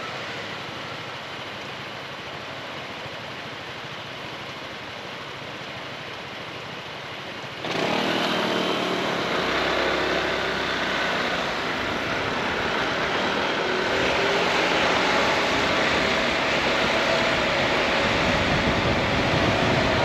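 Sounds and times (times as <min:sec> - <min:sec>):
wind and road noise: 0:03.9 - 0:20.0
scooter engine accelerating: 0:07.6 - 0:20.0.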